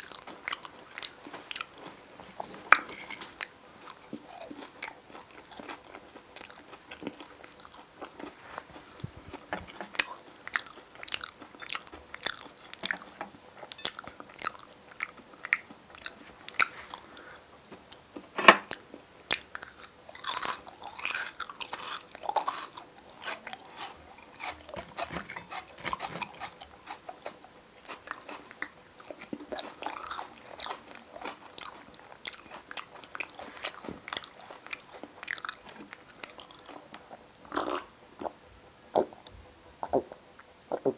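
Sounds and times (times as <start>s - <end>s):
man chewing food: 0.0s - 40.9s
wet mouth clicks: 37.5s - 40.9s.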